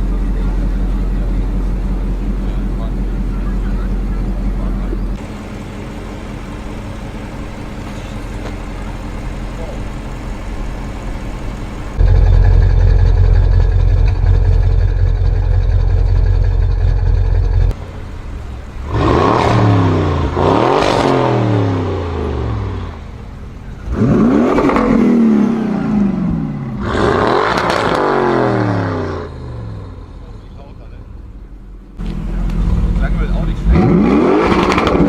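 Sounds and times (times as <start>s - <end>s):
car engine rumbling and revving: 0.0s - 35.0s.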